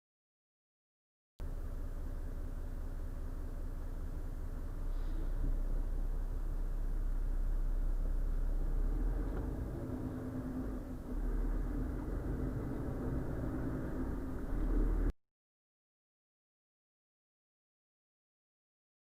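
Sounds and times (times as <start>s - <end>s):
diesel truck engine rumble: 1.4s - 15.1s
road noise: 1.4s - 15.1s.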